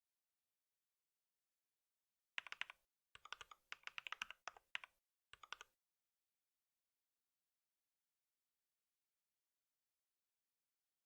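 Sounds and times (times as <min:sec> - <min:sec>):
typing on a keyboard: 0:02.4 - 0:05.7.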